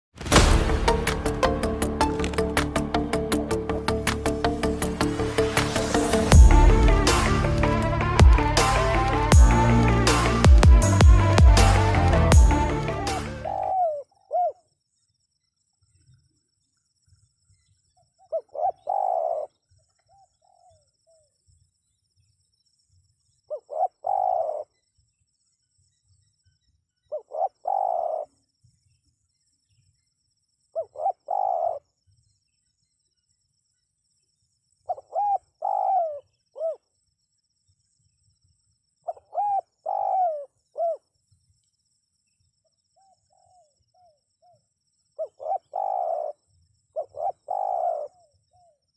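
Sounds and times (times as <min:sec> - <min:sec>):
dove cooing: 0:13.5 - 0:14.6, 0:18.3 - 0:19.5, 0:23.5 - 0:24.6, 0:27.1 - 0:28.3, 0:30.8 - 0:31.8, 0:34.9 - 0:36.8, 0:39.1 - 0:41.0, 0:45.2 - 0:46.4, 0:47.0 - 0:48.3.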